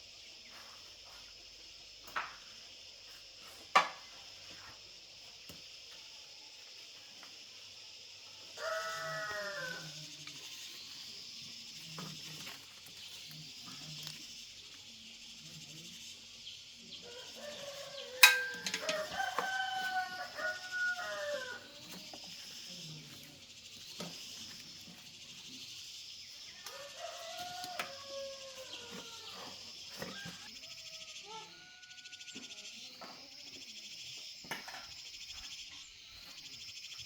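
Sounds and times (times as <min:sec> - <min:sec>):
high insect drone: 0:00.0 - 0:37.0
rooster crowing: 0:08.4 - 0:10.0, 0:17.0 - 0:22.0, 0:26.5 - 0:32.7.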